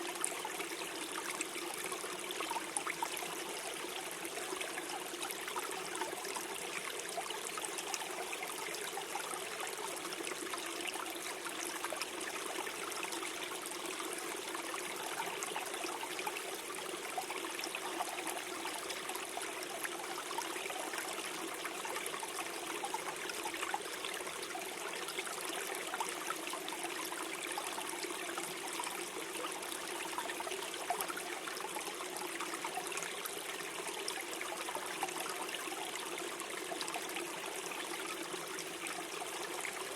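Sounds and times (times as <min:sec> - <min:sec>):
stream gurgling over stones: 0:00.0 - 0:39.9.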